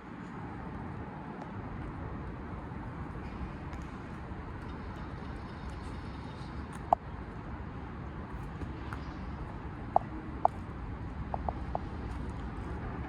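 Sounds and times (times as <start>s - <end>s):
low outdoor rumble: 0.1s - 13.0s.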